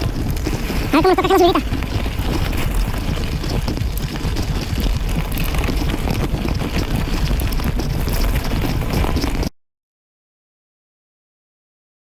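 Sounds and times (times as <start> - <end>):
bike rattling and knocking: 0.0 - 9.5
wind buffeting microphone: 0.0 - 9.5.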